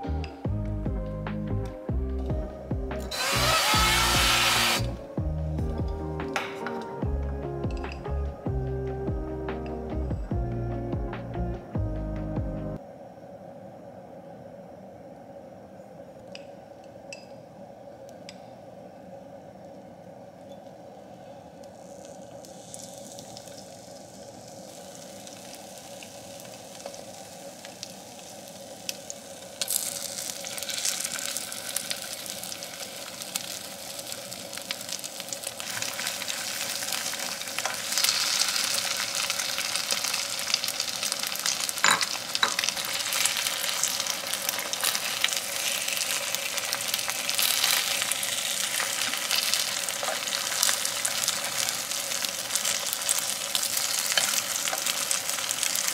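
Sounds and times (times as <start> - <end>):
faint steady hum: 0.0 - 55.9
food sizzling in hot oil: 2.9 - 8.2, 20.8 - 55.9.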